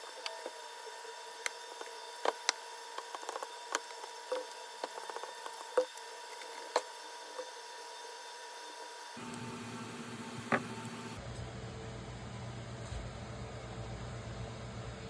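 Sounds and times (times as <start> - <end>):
faint steady hum: 9.2 - 15.0.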